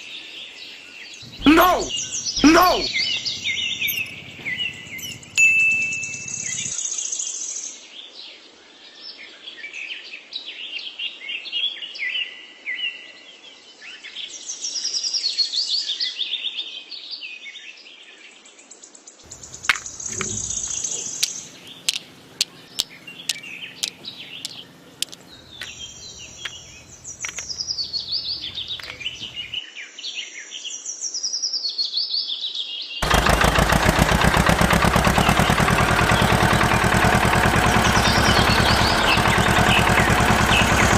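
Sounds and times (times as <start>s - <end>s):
birds chirping and calling: 1.2s - 6.7s, 19.3s - 29.6s, 33.0s - 40.9s
fast-pulsing engine-like rattle: 1.2s - 6.8s, 19.3s - 29.6s, 33.0s - 40.9s
sharp clicks: 19.3s - 29.5s.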